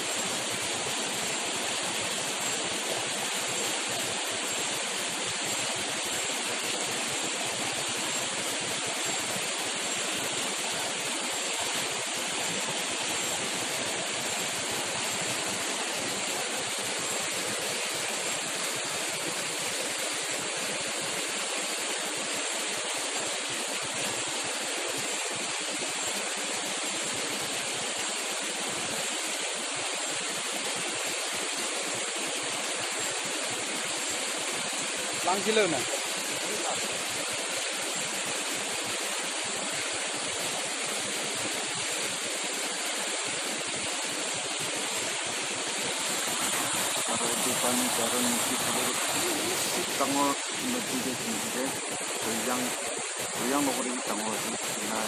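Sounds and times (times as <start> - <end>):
rush of running water: 0.0 - 55.0.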